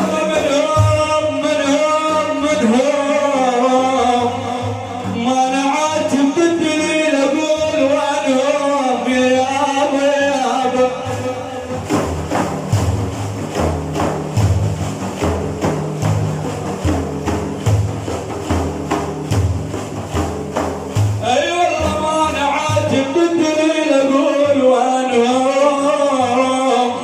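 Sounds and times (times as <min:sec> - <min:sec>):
men chanting: 0:00.0 - 0:12.7, 0:21.0 - 0:27.0
frame drums booming: 0:00.0 - 0:27.0.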